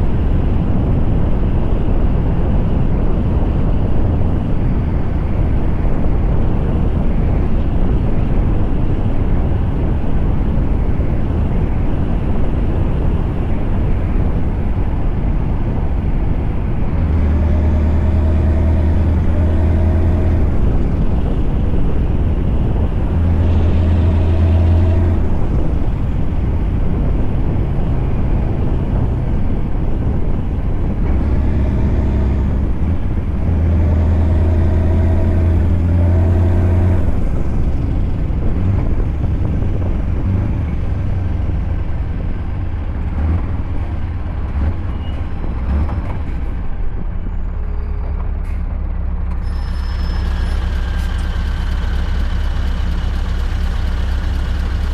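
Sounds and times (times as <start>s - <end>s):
diesel truck engine running: 0.0s - 54.9s.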